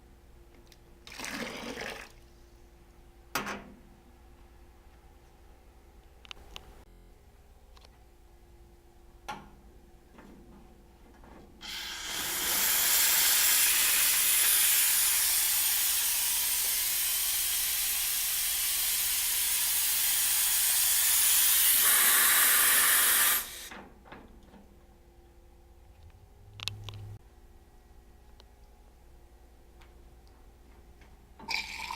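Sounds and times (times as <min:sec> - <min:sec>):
steam wand hissing: 0:11.6 - 0:23.7.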